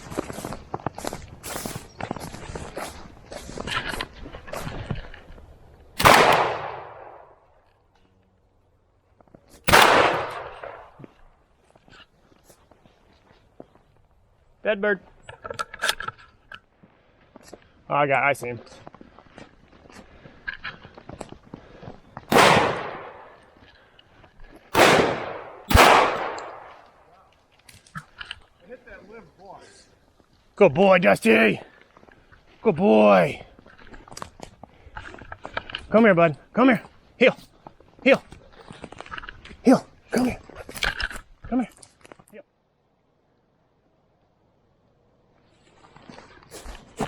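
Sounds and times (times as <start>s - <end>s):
footsteps scuffing: 0.0s - 5.5s, 45.6s - 47.0s
shotgun shots: 6.0s - 7.3s, 9.7s - 11.0s, 22.3s - 23.4s, 24.7s - 26.9s.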